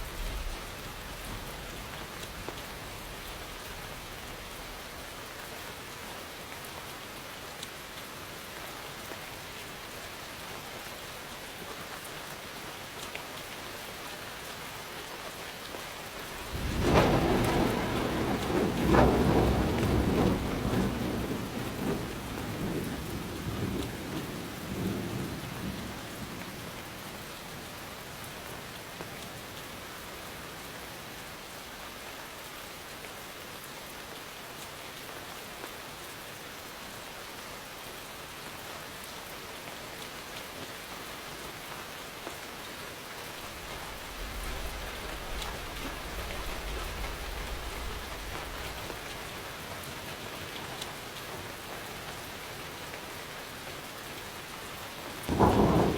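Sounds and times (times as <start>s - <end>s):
thunder crack and rumble: 0.0s - 5.0s, 16.3s - 26.7s, 43.4s - 50.0s, 55.2s - 55.9s
steady rain falling: 0.0s - 55.9s.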